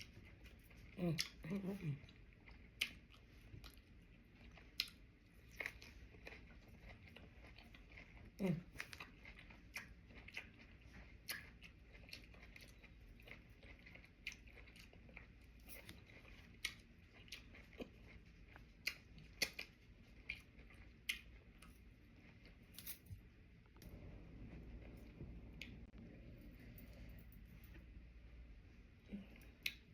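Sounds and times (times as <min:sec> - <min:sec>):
chewing mouth clicks: 0:02.0 - 0:21.8, 0:29.4 - 0:29.9.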